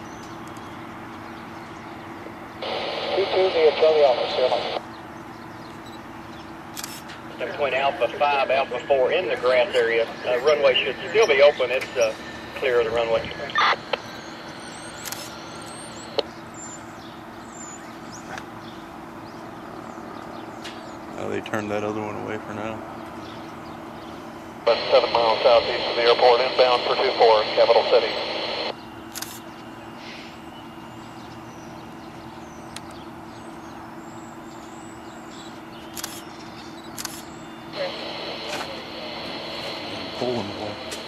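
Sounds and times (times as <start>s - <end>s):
steady low hum: 0.0s - 41.0s
sharp click: 35.9s - 37.3s.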